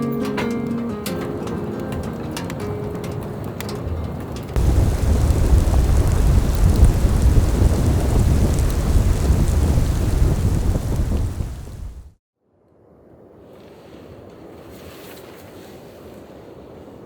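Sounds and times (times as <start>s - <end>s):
wind rumbling on microphone: 2.5s - 12.2s
steady hiss: 4.6s - 12.1s.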